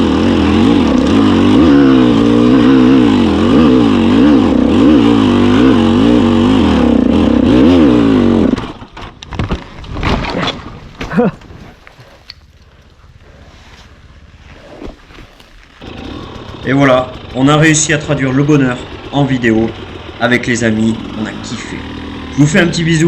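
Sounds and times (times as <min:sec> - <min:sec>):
motorcycle engine revving: 0:00.0 - 0:08.9, 0:12.5 - 0:23.0.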